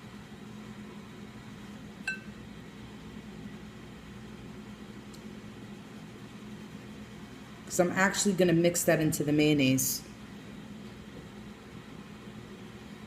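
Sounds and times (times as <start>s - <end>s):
glass clinking: 2.1s - 2.3s.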